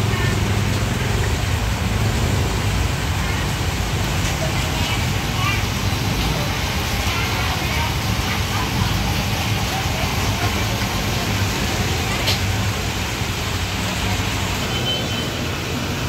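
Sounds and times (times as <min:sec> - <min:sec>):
fish cakes sizzling in oil: 0:00.1 - 0:15.3.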